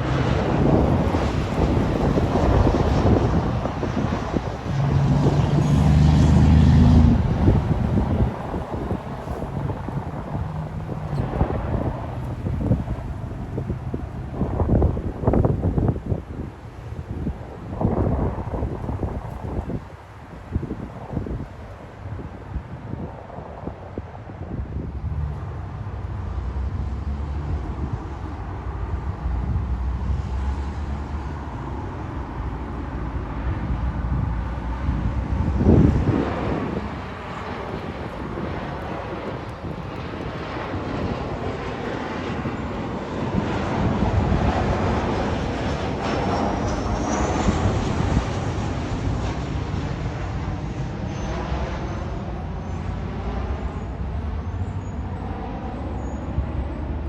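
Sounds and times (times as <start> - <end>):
low rumble: 0.0 - 16.0
jet airliner engine roar: 0.0 - 57.0.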